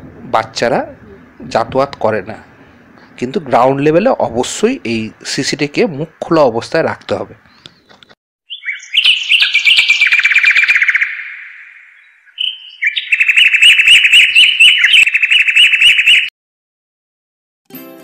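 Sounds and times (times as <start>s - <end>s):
bird song with trills: 7.4s - 16.3s.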